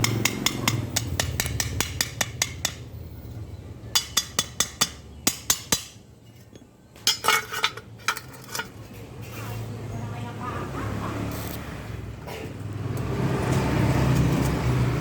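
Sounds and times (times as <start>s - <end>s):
metal taps and clinks: 4.0s - 8.7s.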